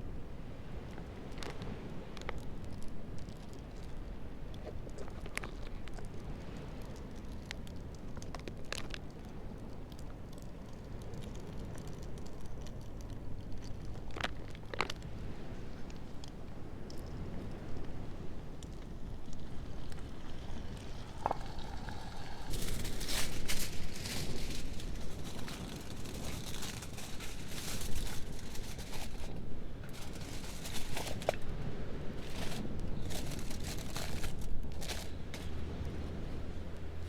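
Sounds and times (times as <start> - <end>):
campfire cooking crackles and rustles: 0.0 - 37.0
steady low rumble: 16.5 - 37.0.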